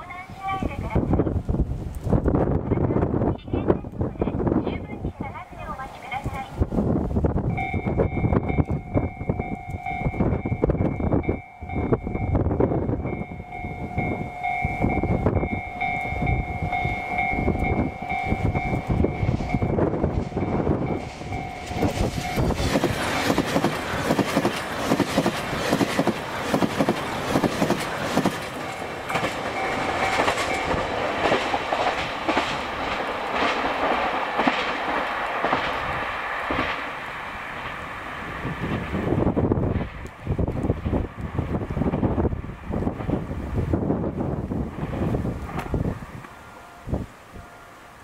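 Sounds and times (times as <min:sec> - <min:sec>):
two-pitch tone: 0:07.5 - 0:22.6, 0:28.7 - 0:30.8
train wheels clacking: 0:07.6 - 0:37.9.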